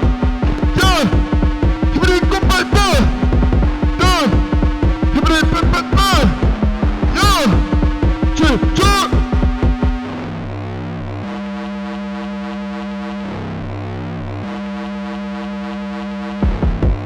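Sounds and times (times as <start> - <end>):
music beat: 0.0 - 10.6, 16.2 - 17.0
sustained synthesizer chords: 0.0 - 17.0.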